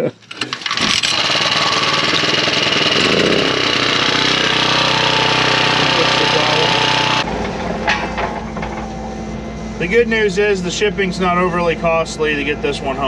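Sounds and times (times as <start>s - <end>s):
machine engine hammering: 0.6s - 9.6s.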